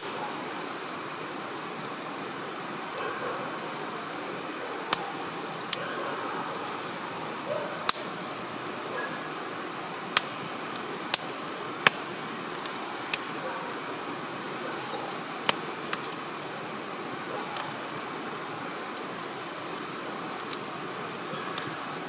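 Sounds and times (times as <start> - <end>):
campfire hissing: 0.0 - 22.0
fire crackles and pops: 0.0 - 22.0.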